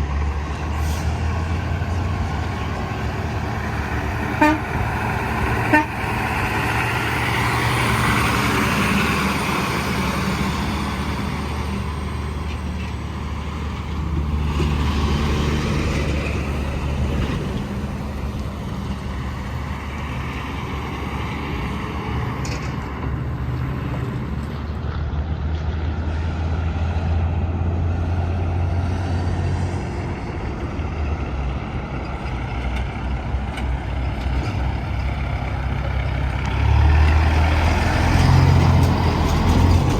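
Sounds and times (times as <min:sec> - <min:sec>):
trucks passing on highway: 0:00.0 - 0:39.9.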